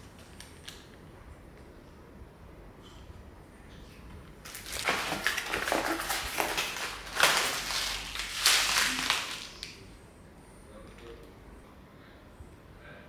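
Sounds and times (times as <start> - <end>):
crunching and crackling clicks: 0.0 - 1.0, 4.3 - 10.0.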